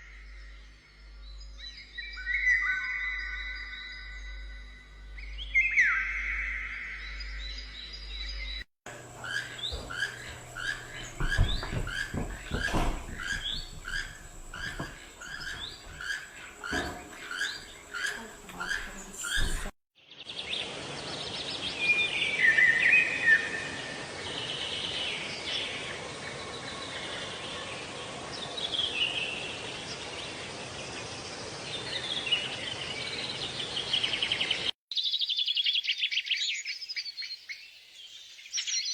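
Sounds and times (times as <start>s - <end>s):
birds chirping and twittering: 0.0s - 38.9s
knocks: 8.9s - 19.7s.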